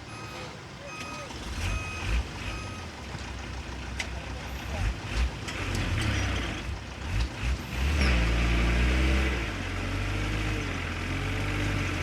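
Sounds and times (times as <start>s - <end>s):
heavy diesel engine revving: 4.5s - 12.0s.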